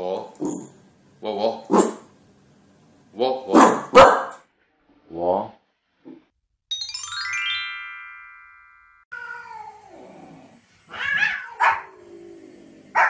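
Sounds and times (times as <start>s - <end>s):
dog yapping: 3.6s - 4.4s, 10.9s - 12.0s
bell-like notes: 6.7s - 9.1s.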